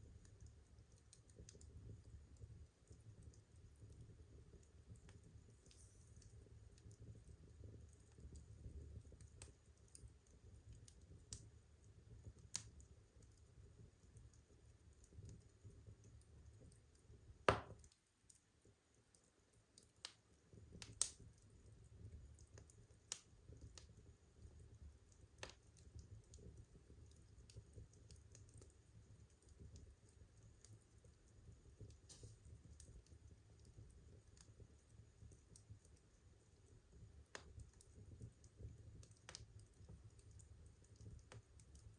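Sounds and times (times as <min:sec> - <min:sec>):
wood pops and snaps: 0:17.5 - 0:18.0
firewood crackling: 0:20.0 - 0:24.0, 0:37.3 - 0:41.9.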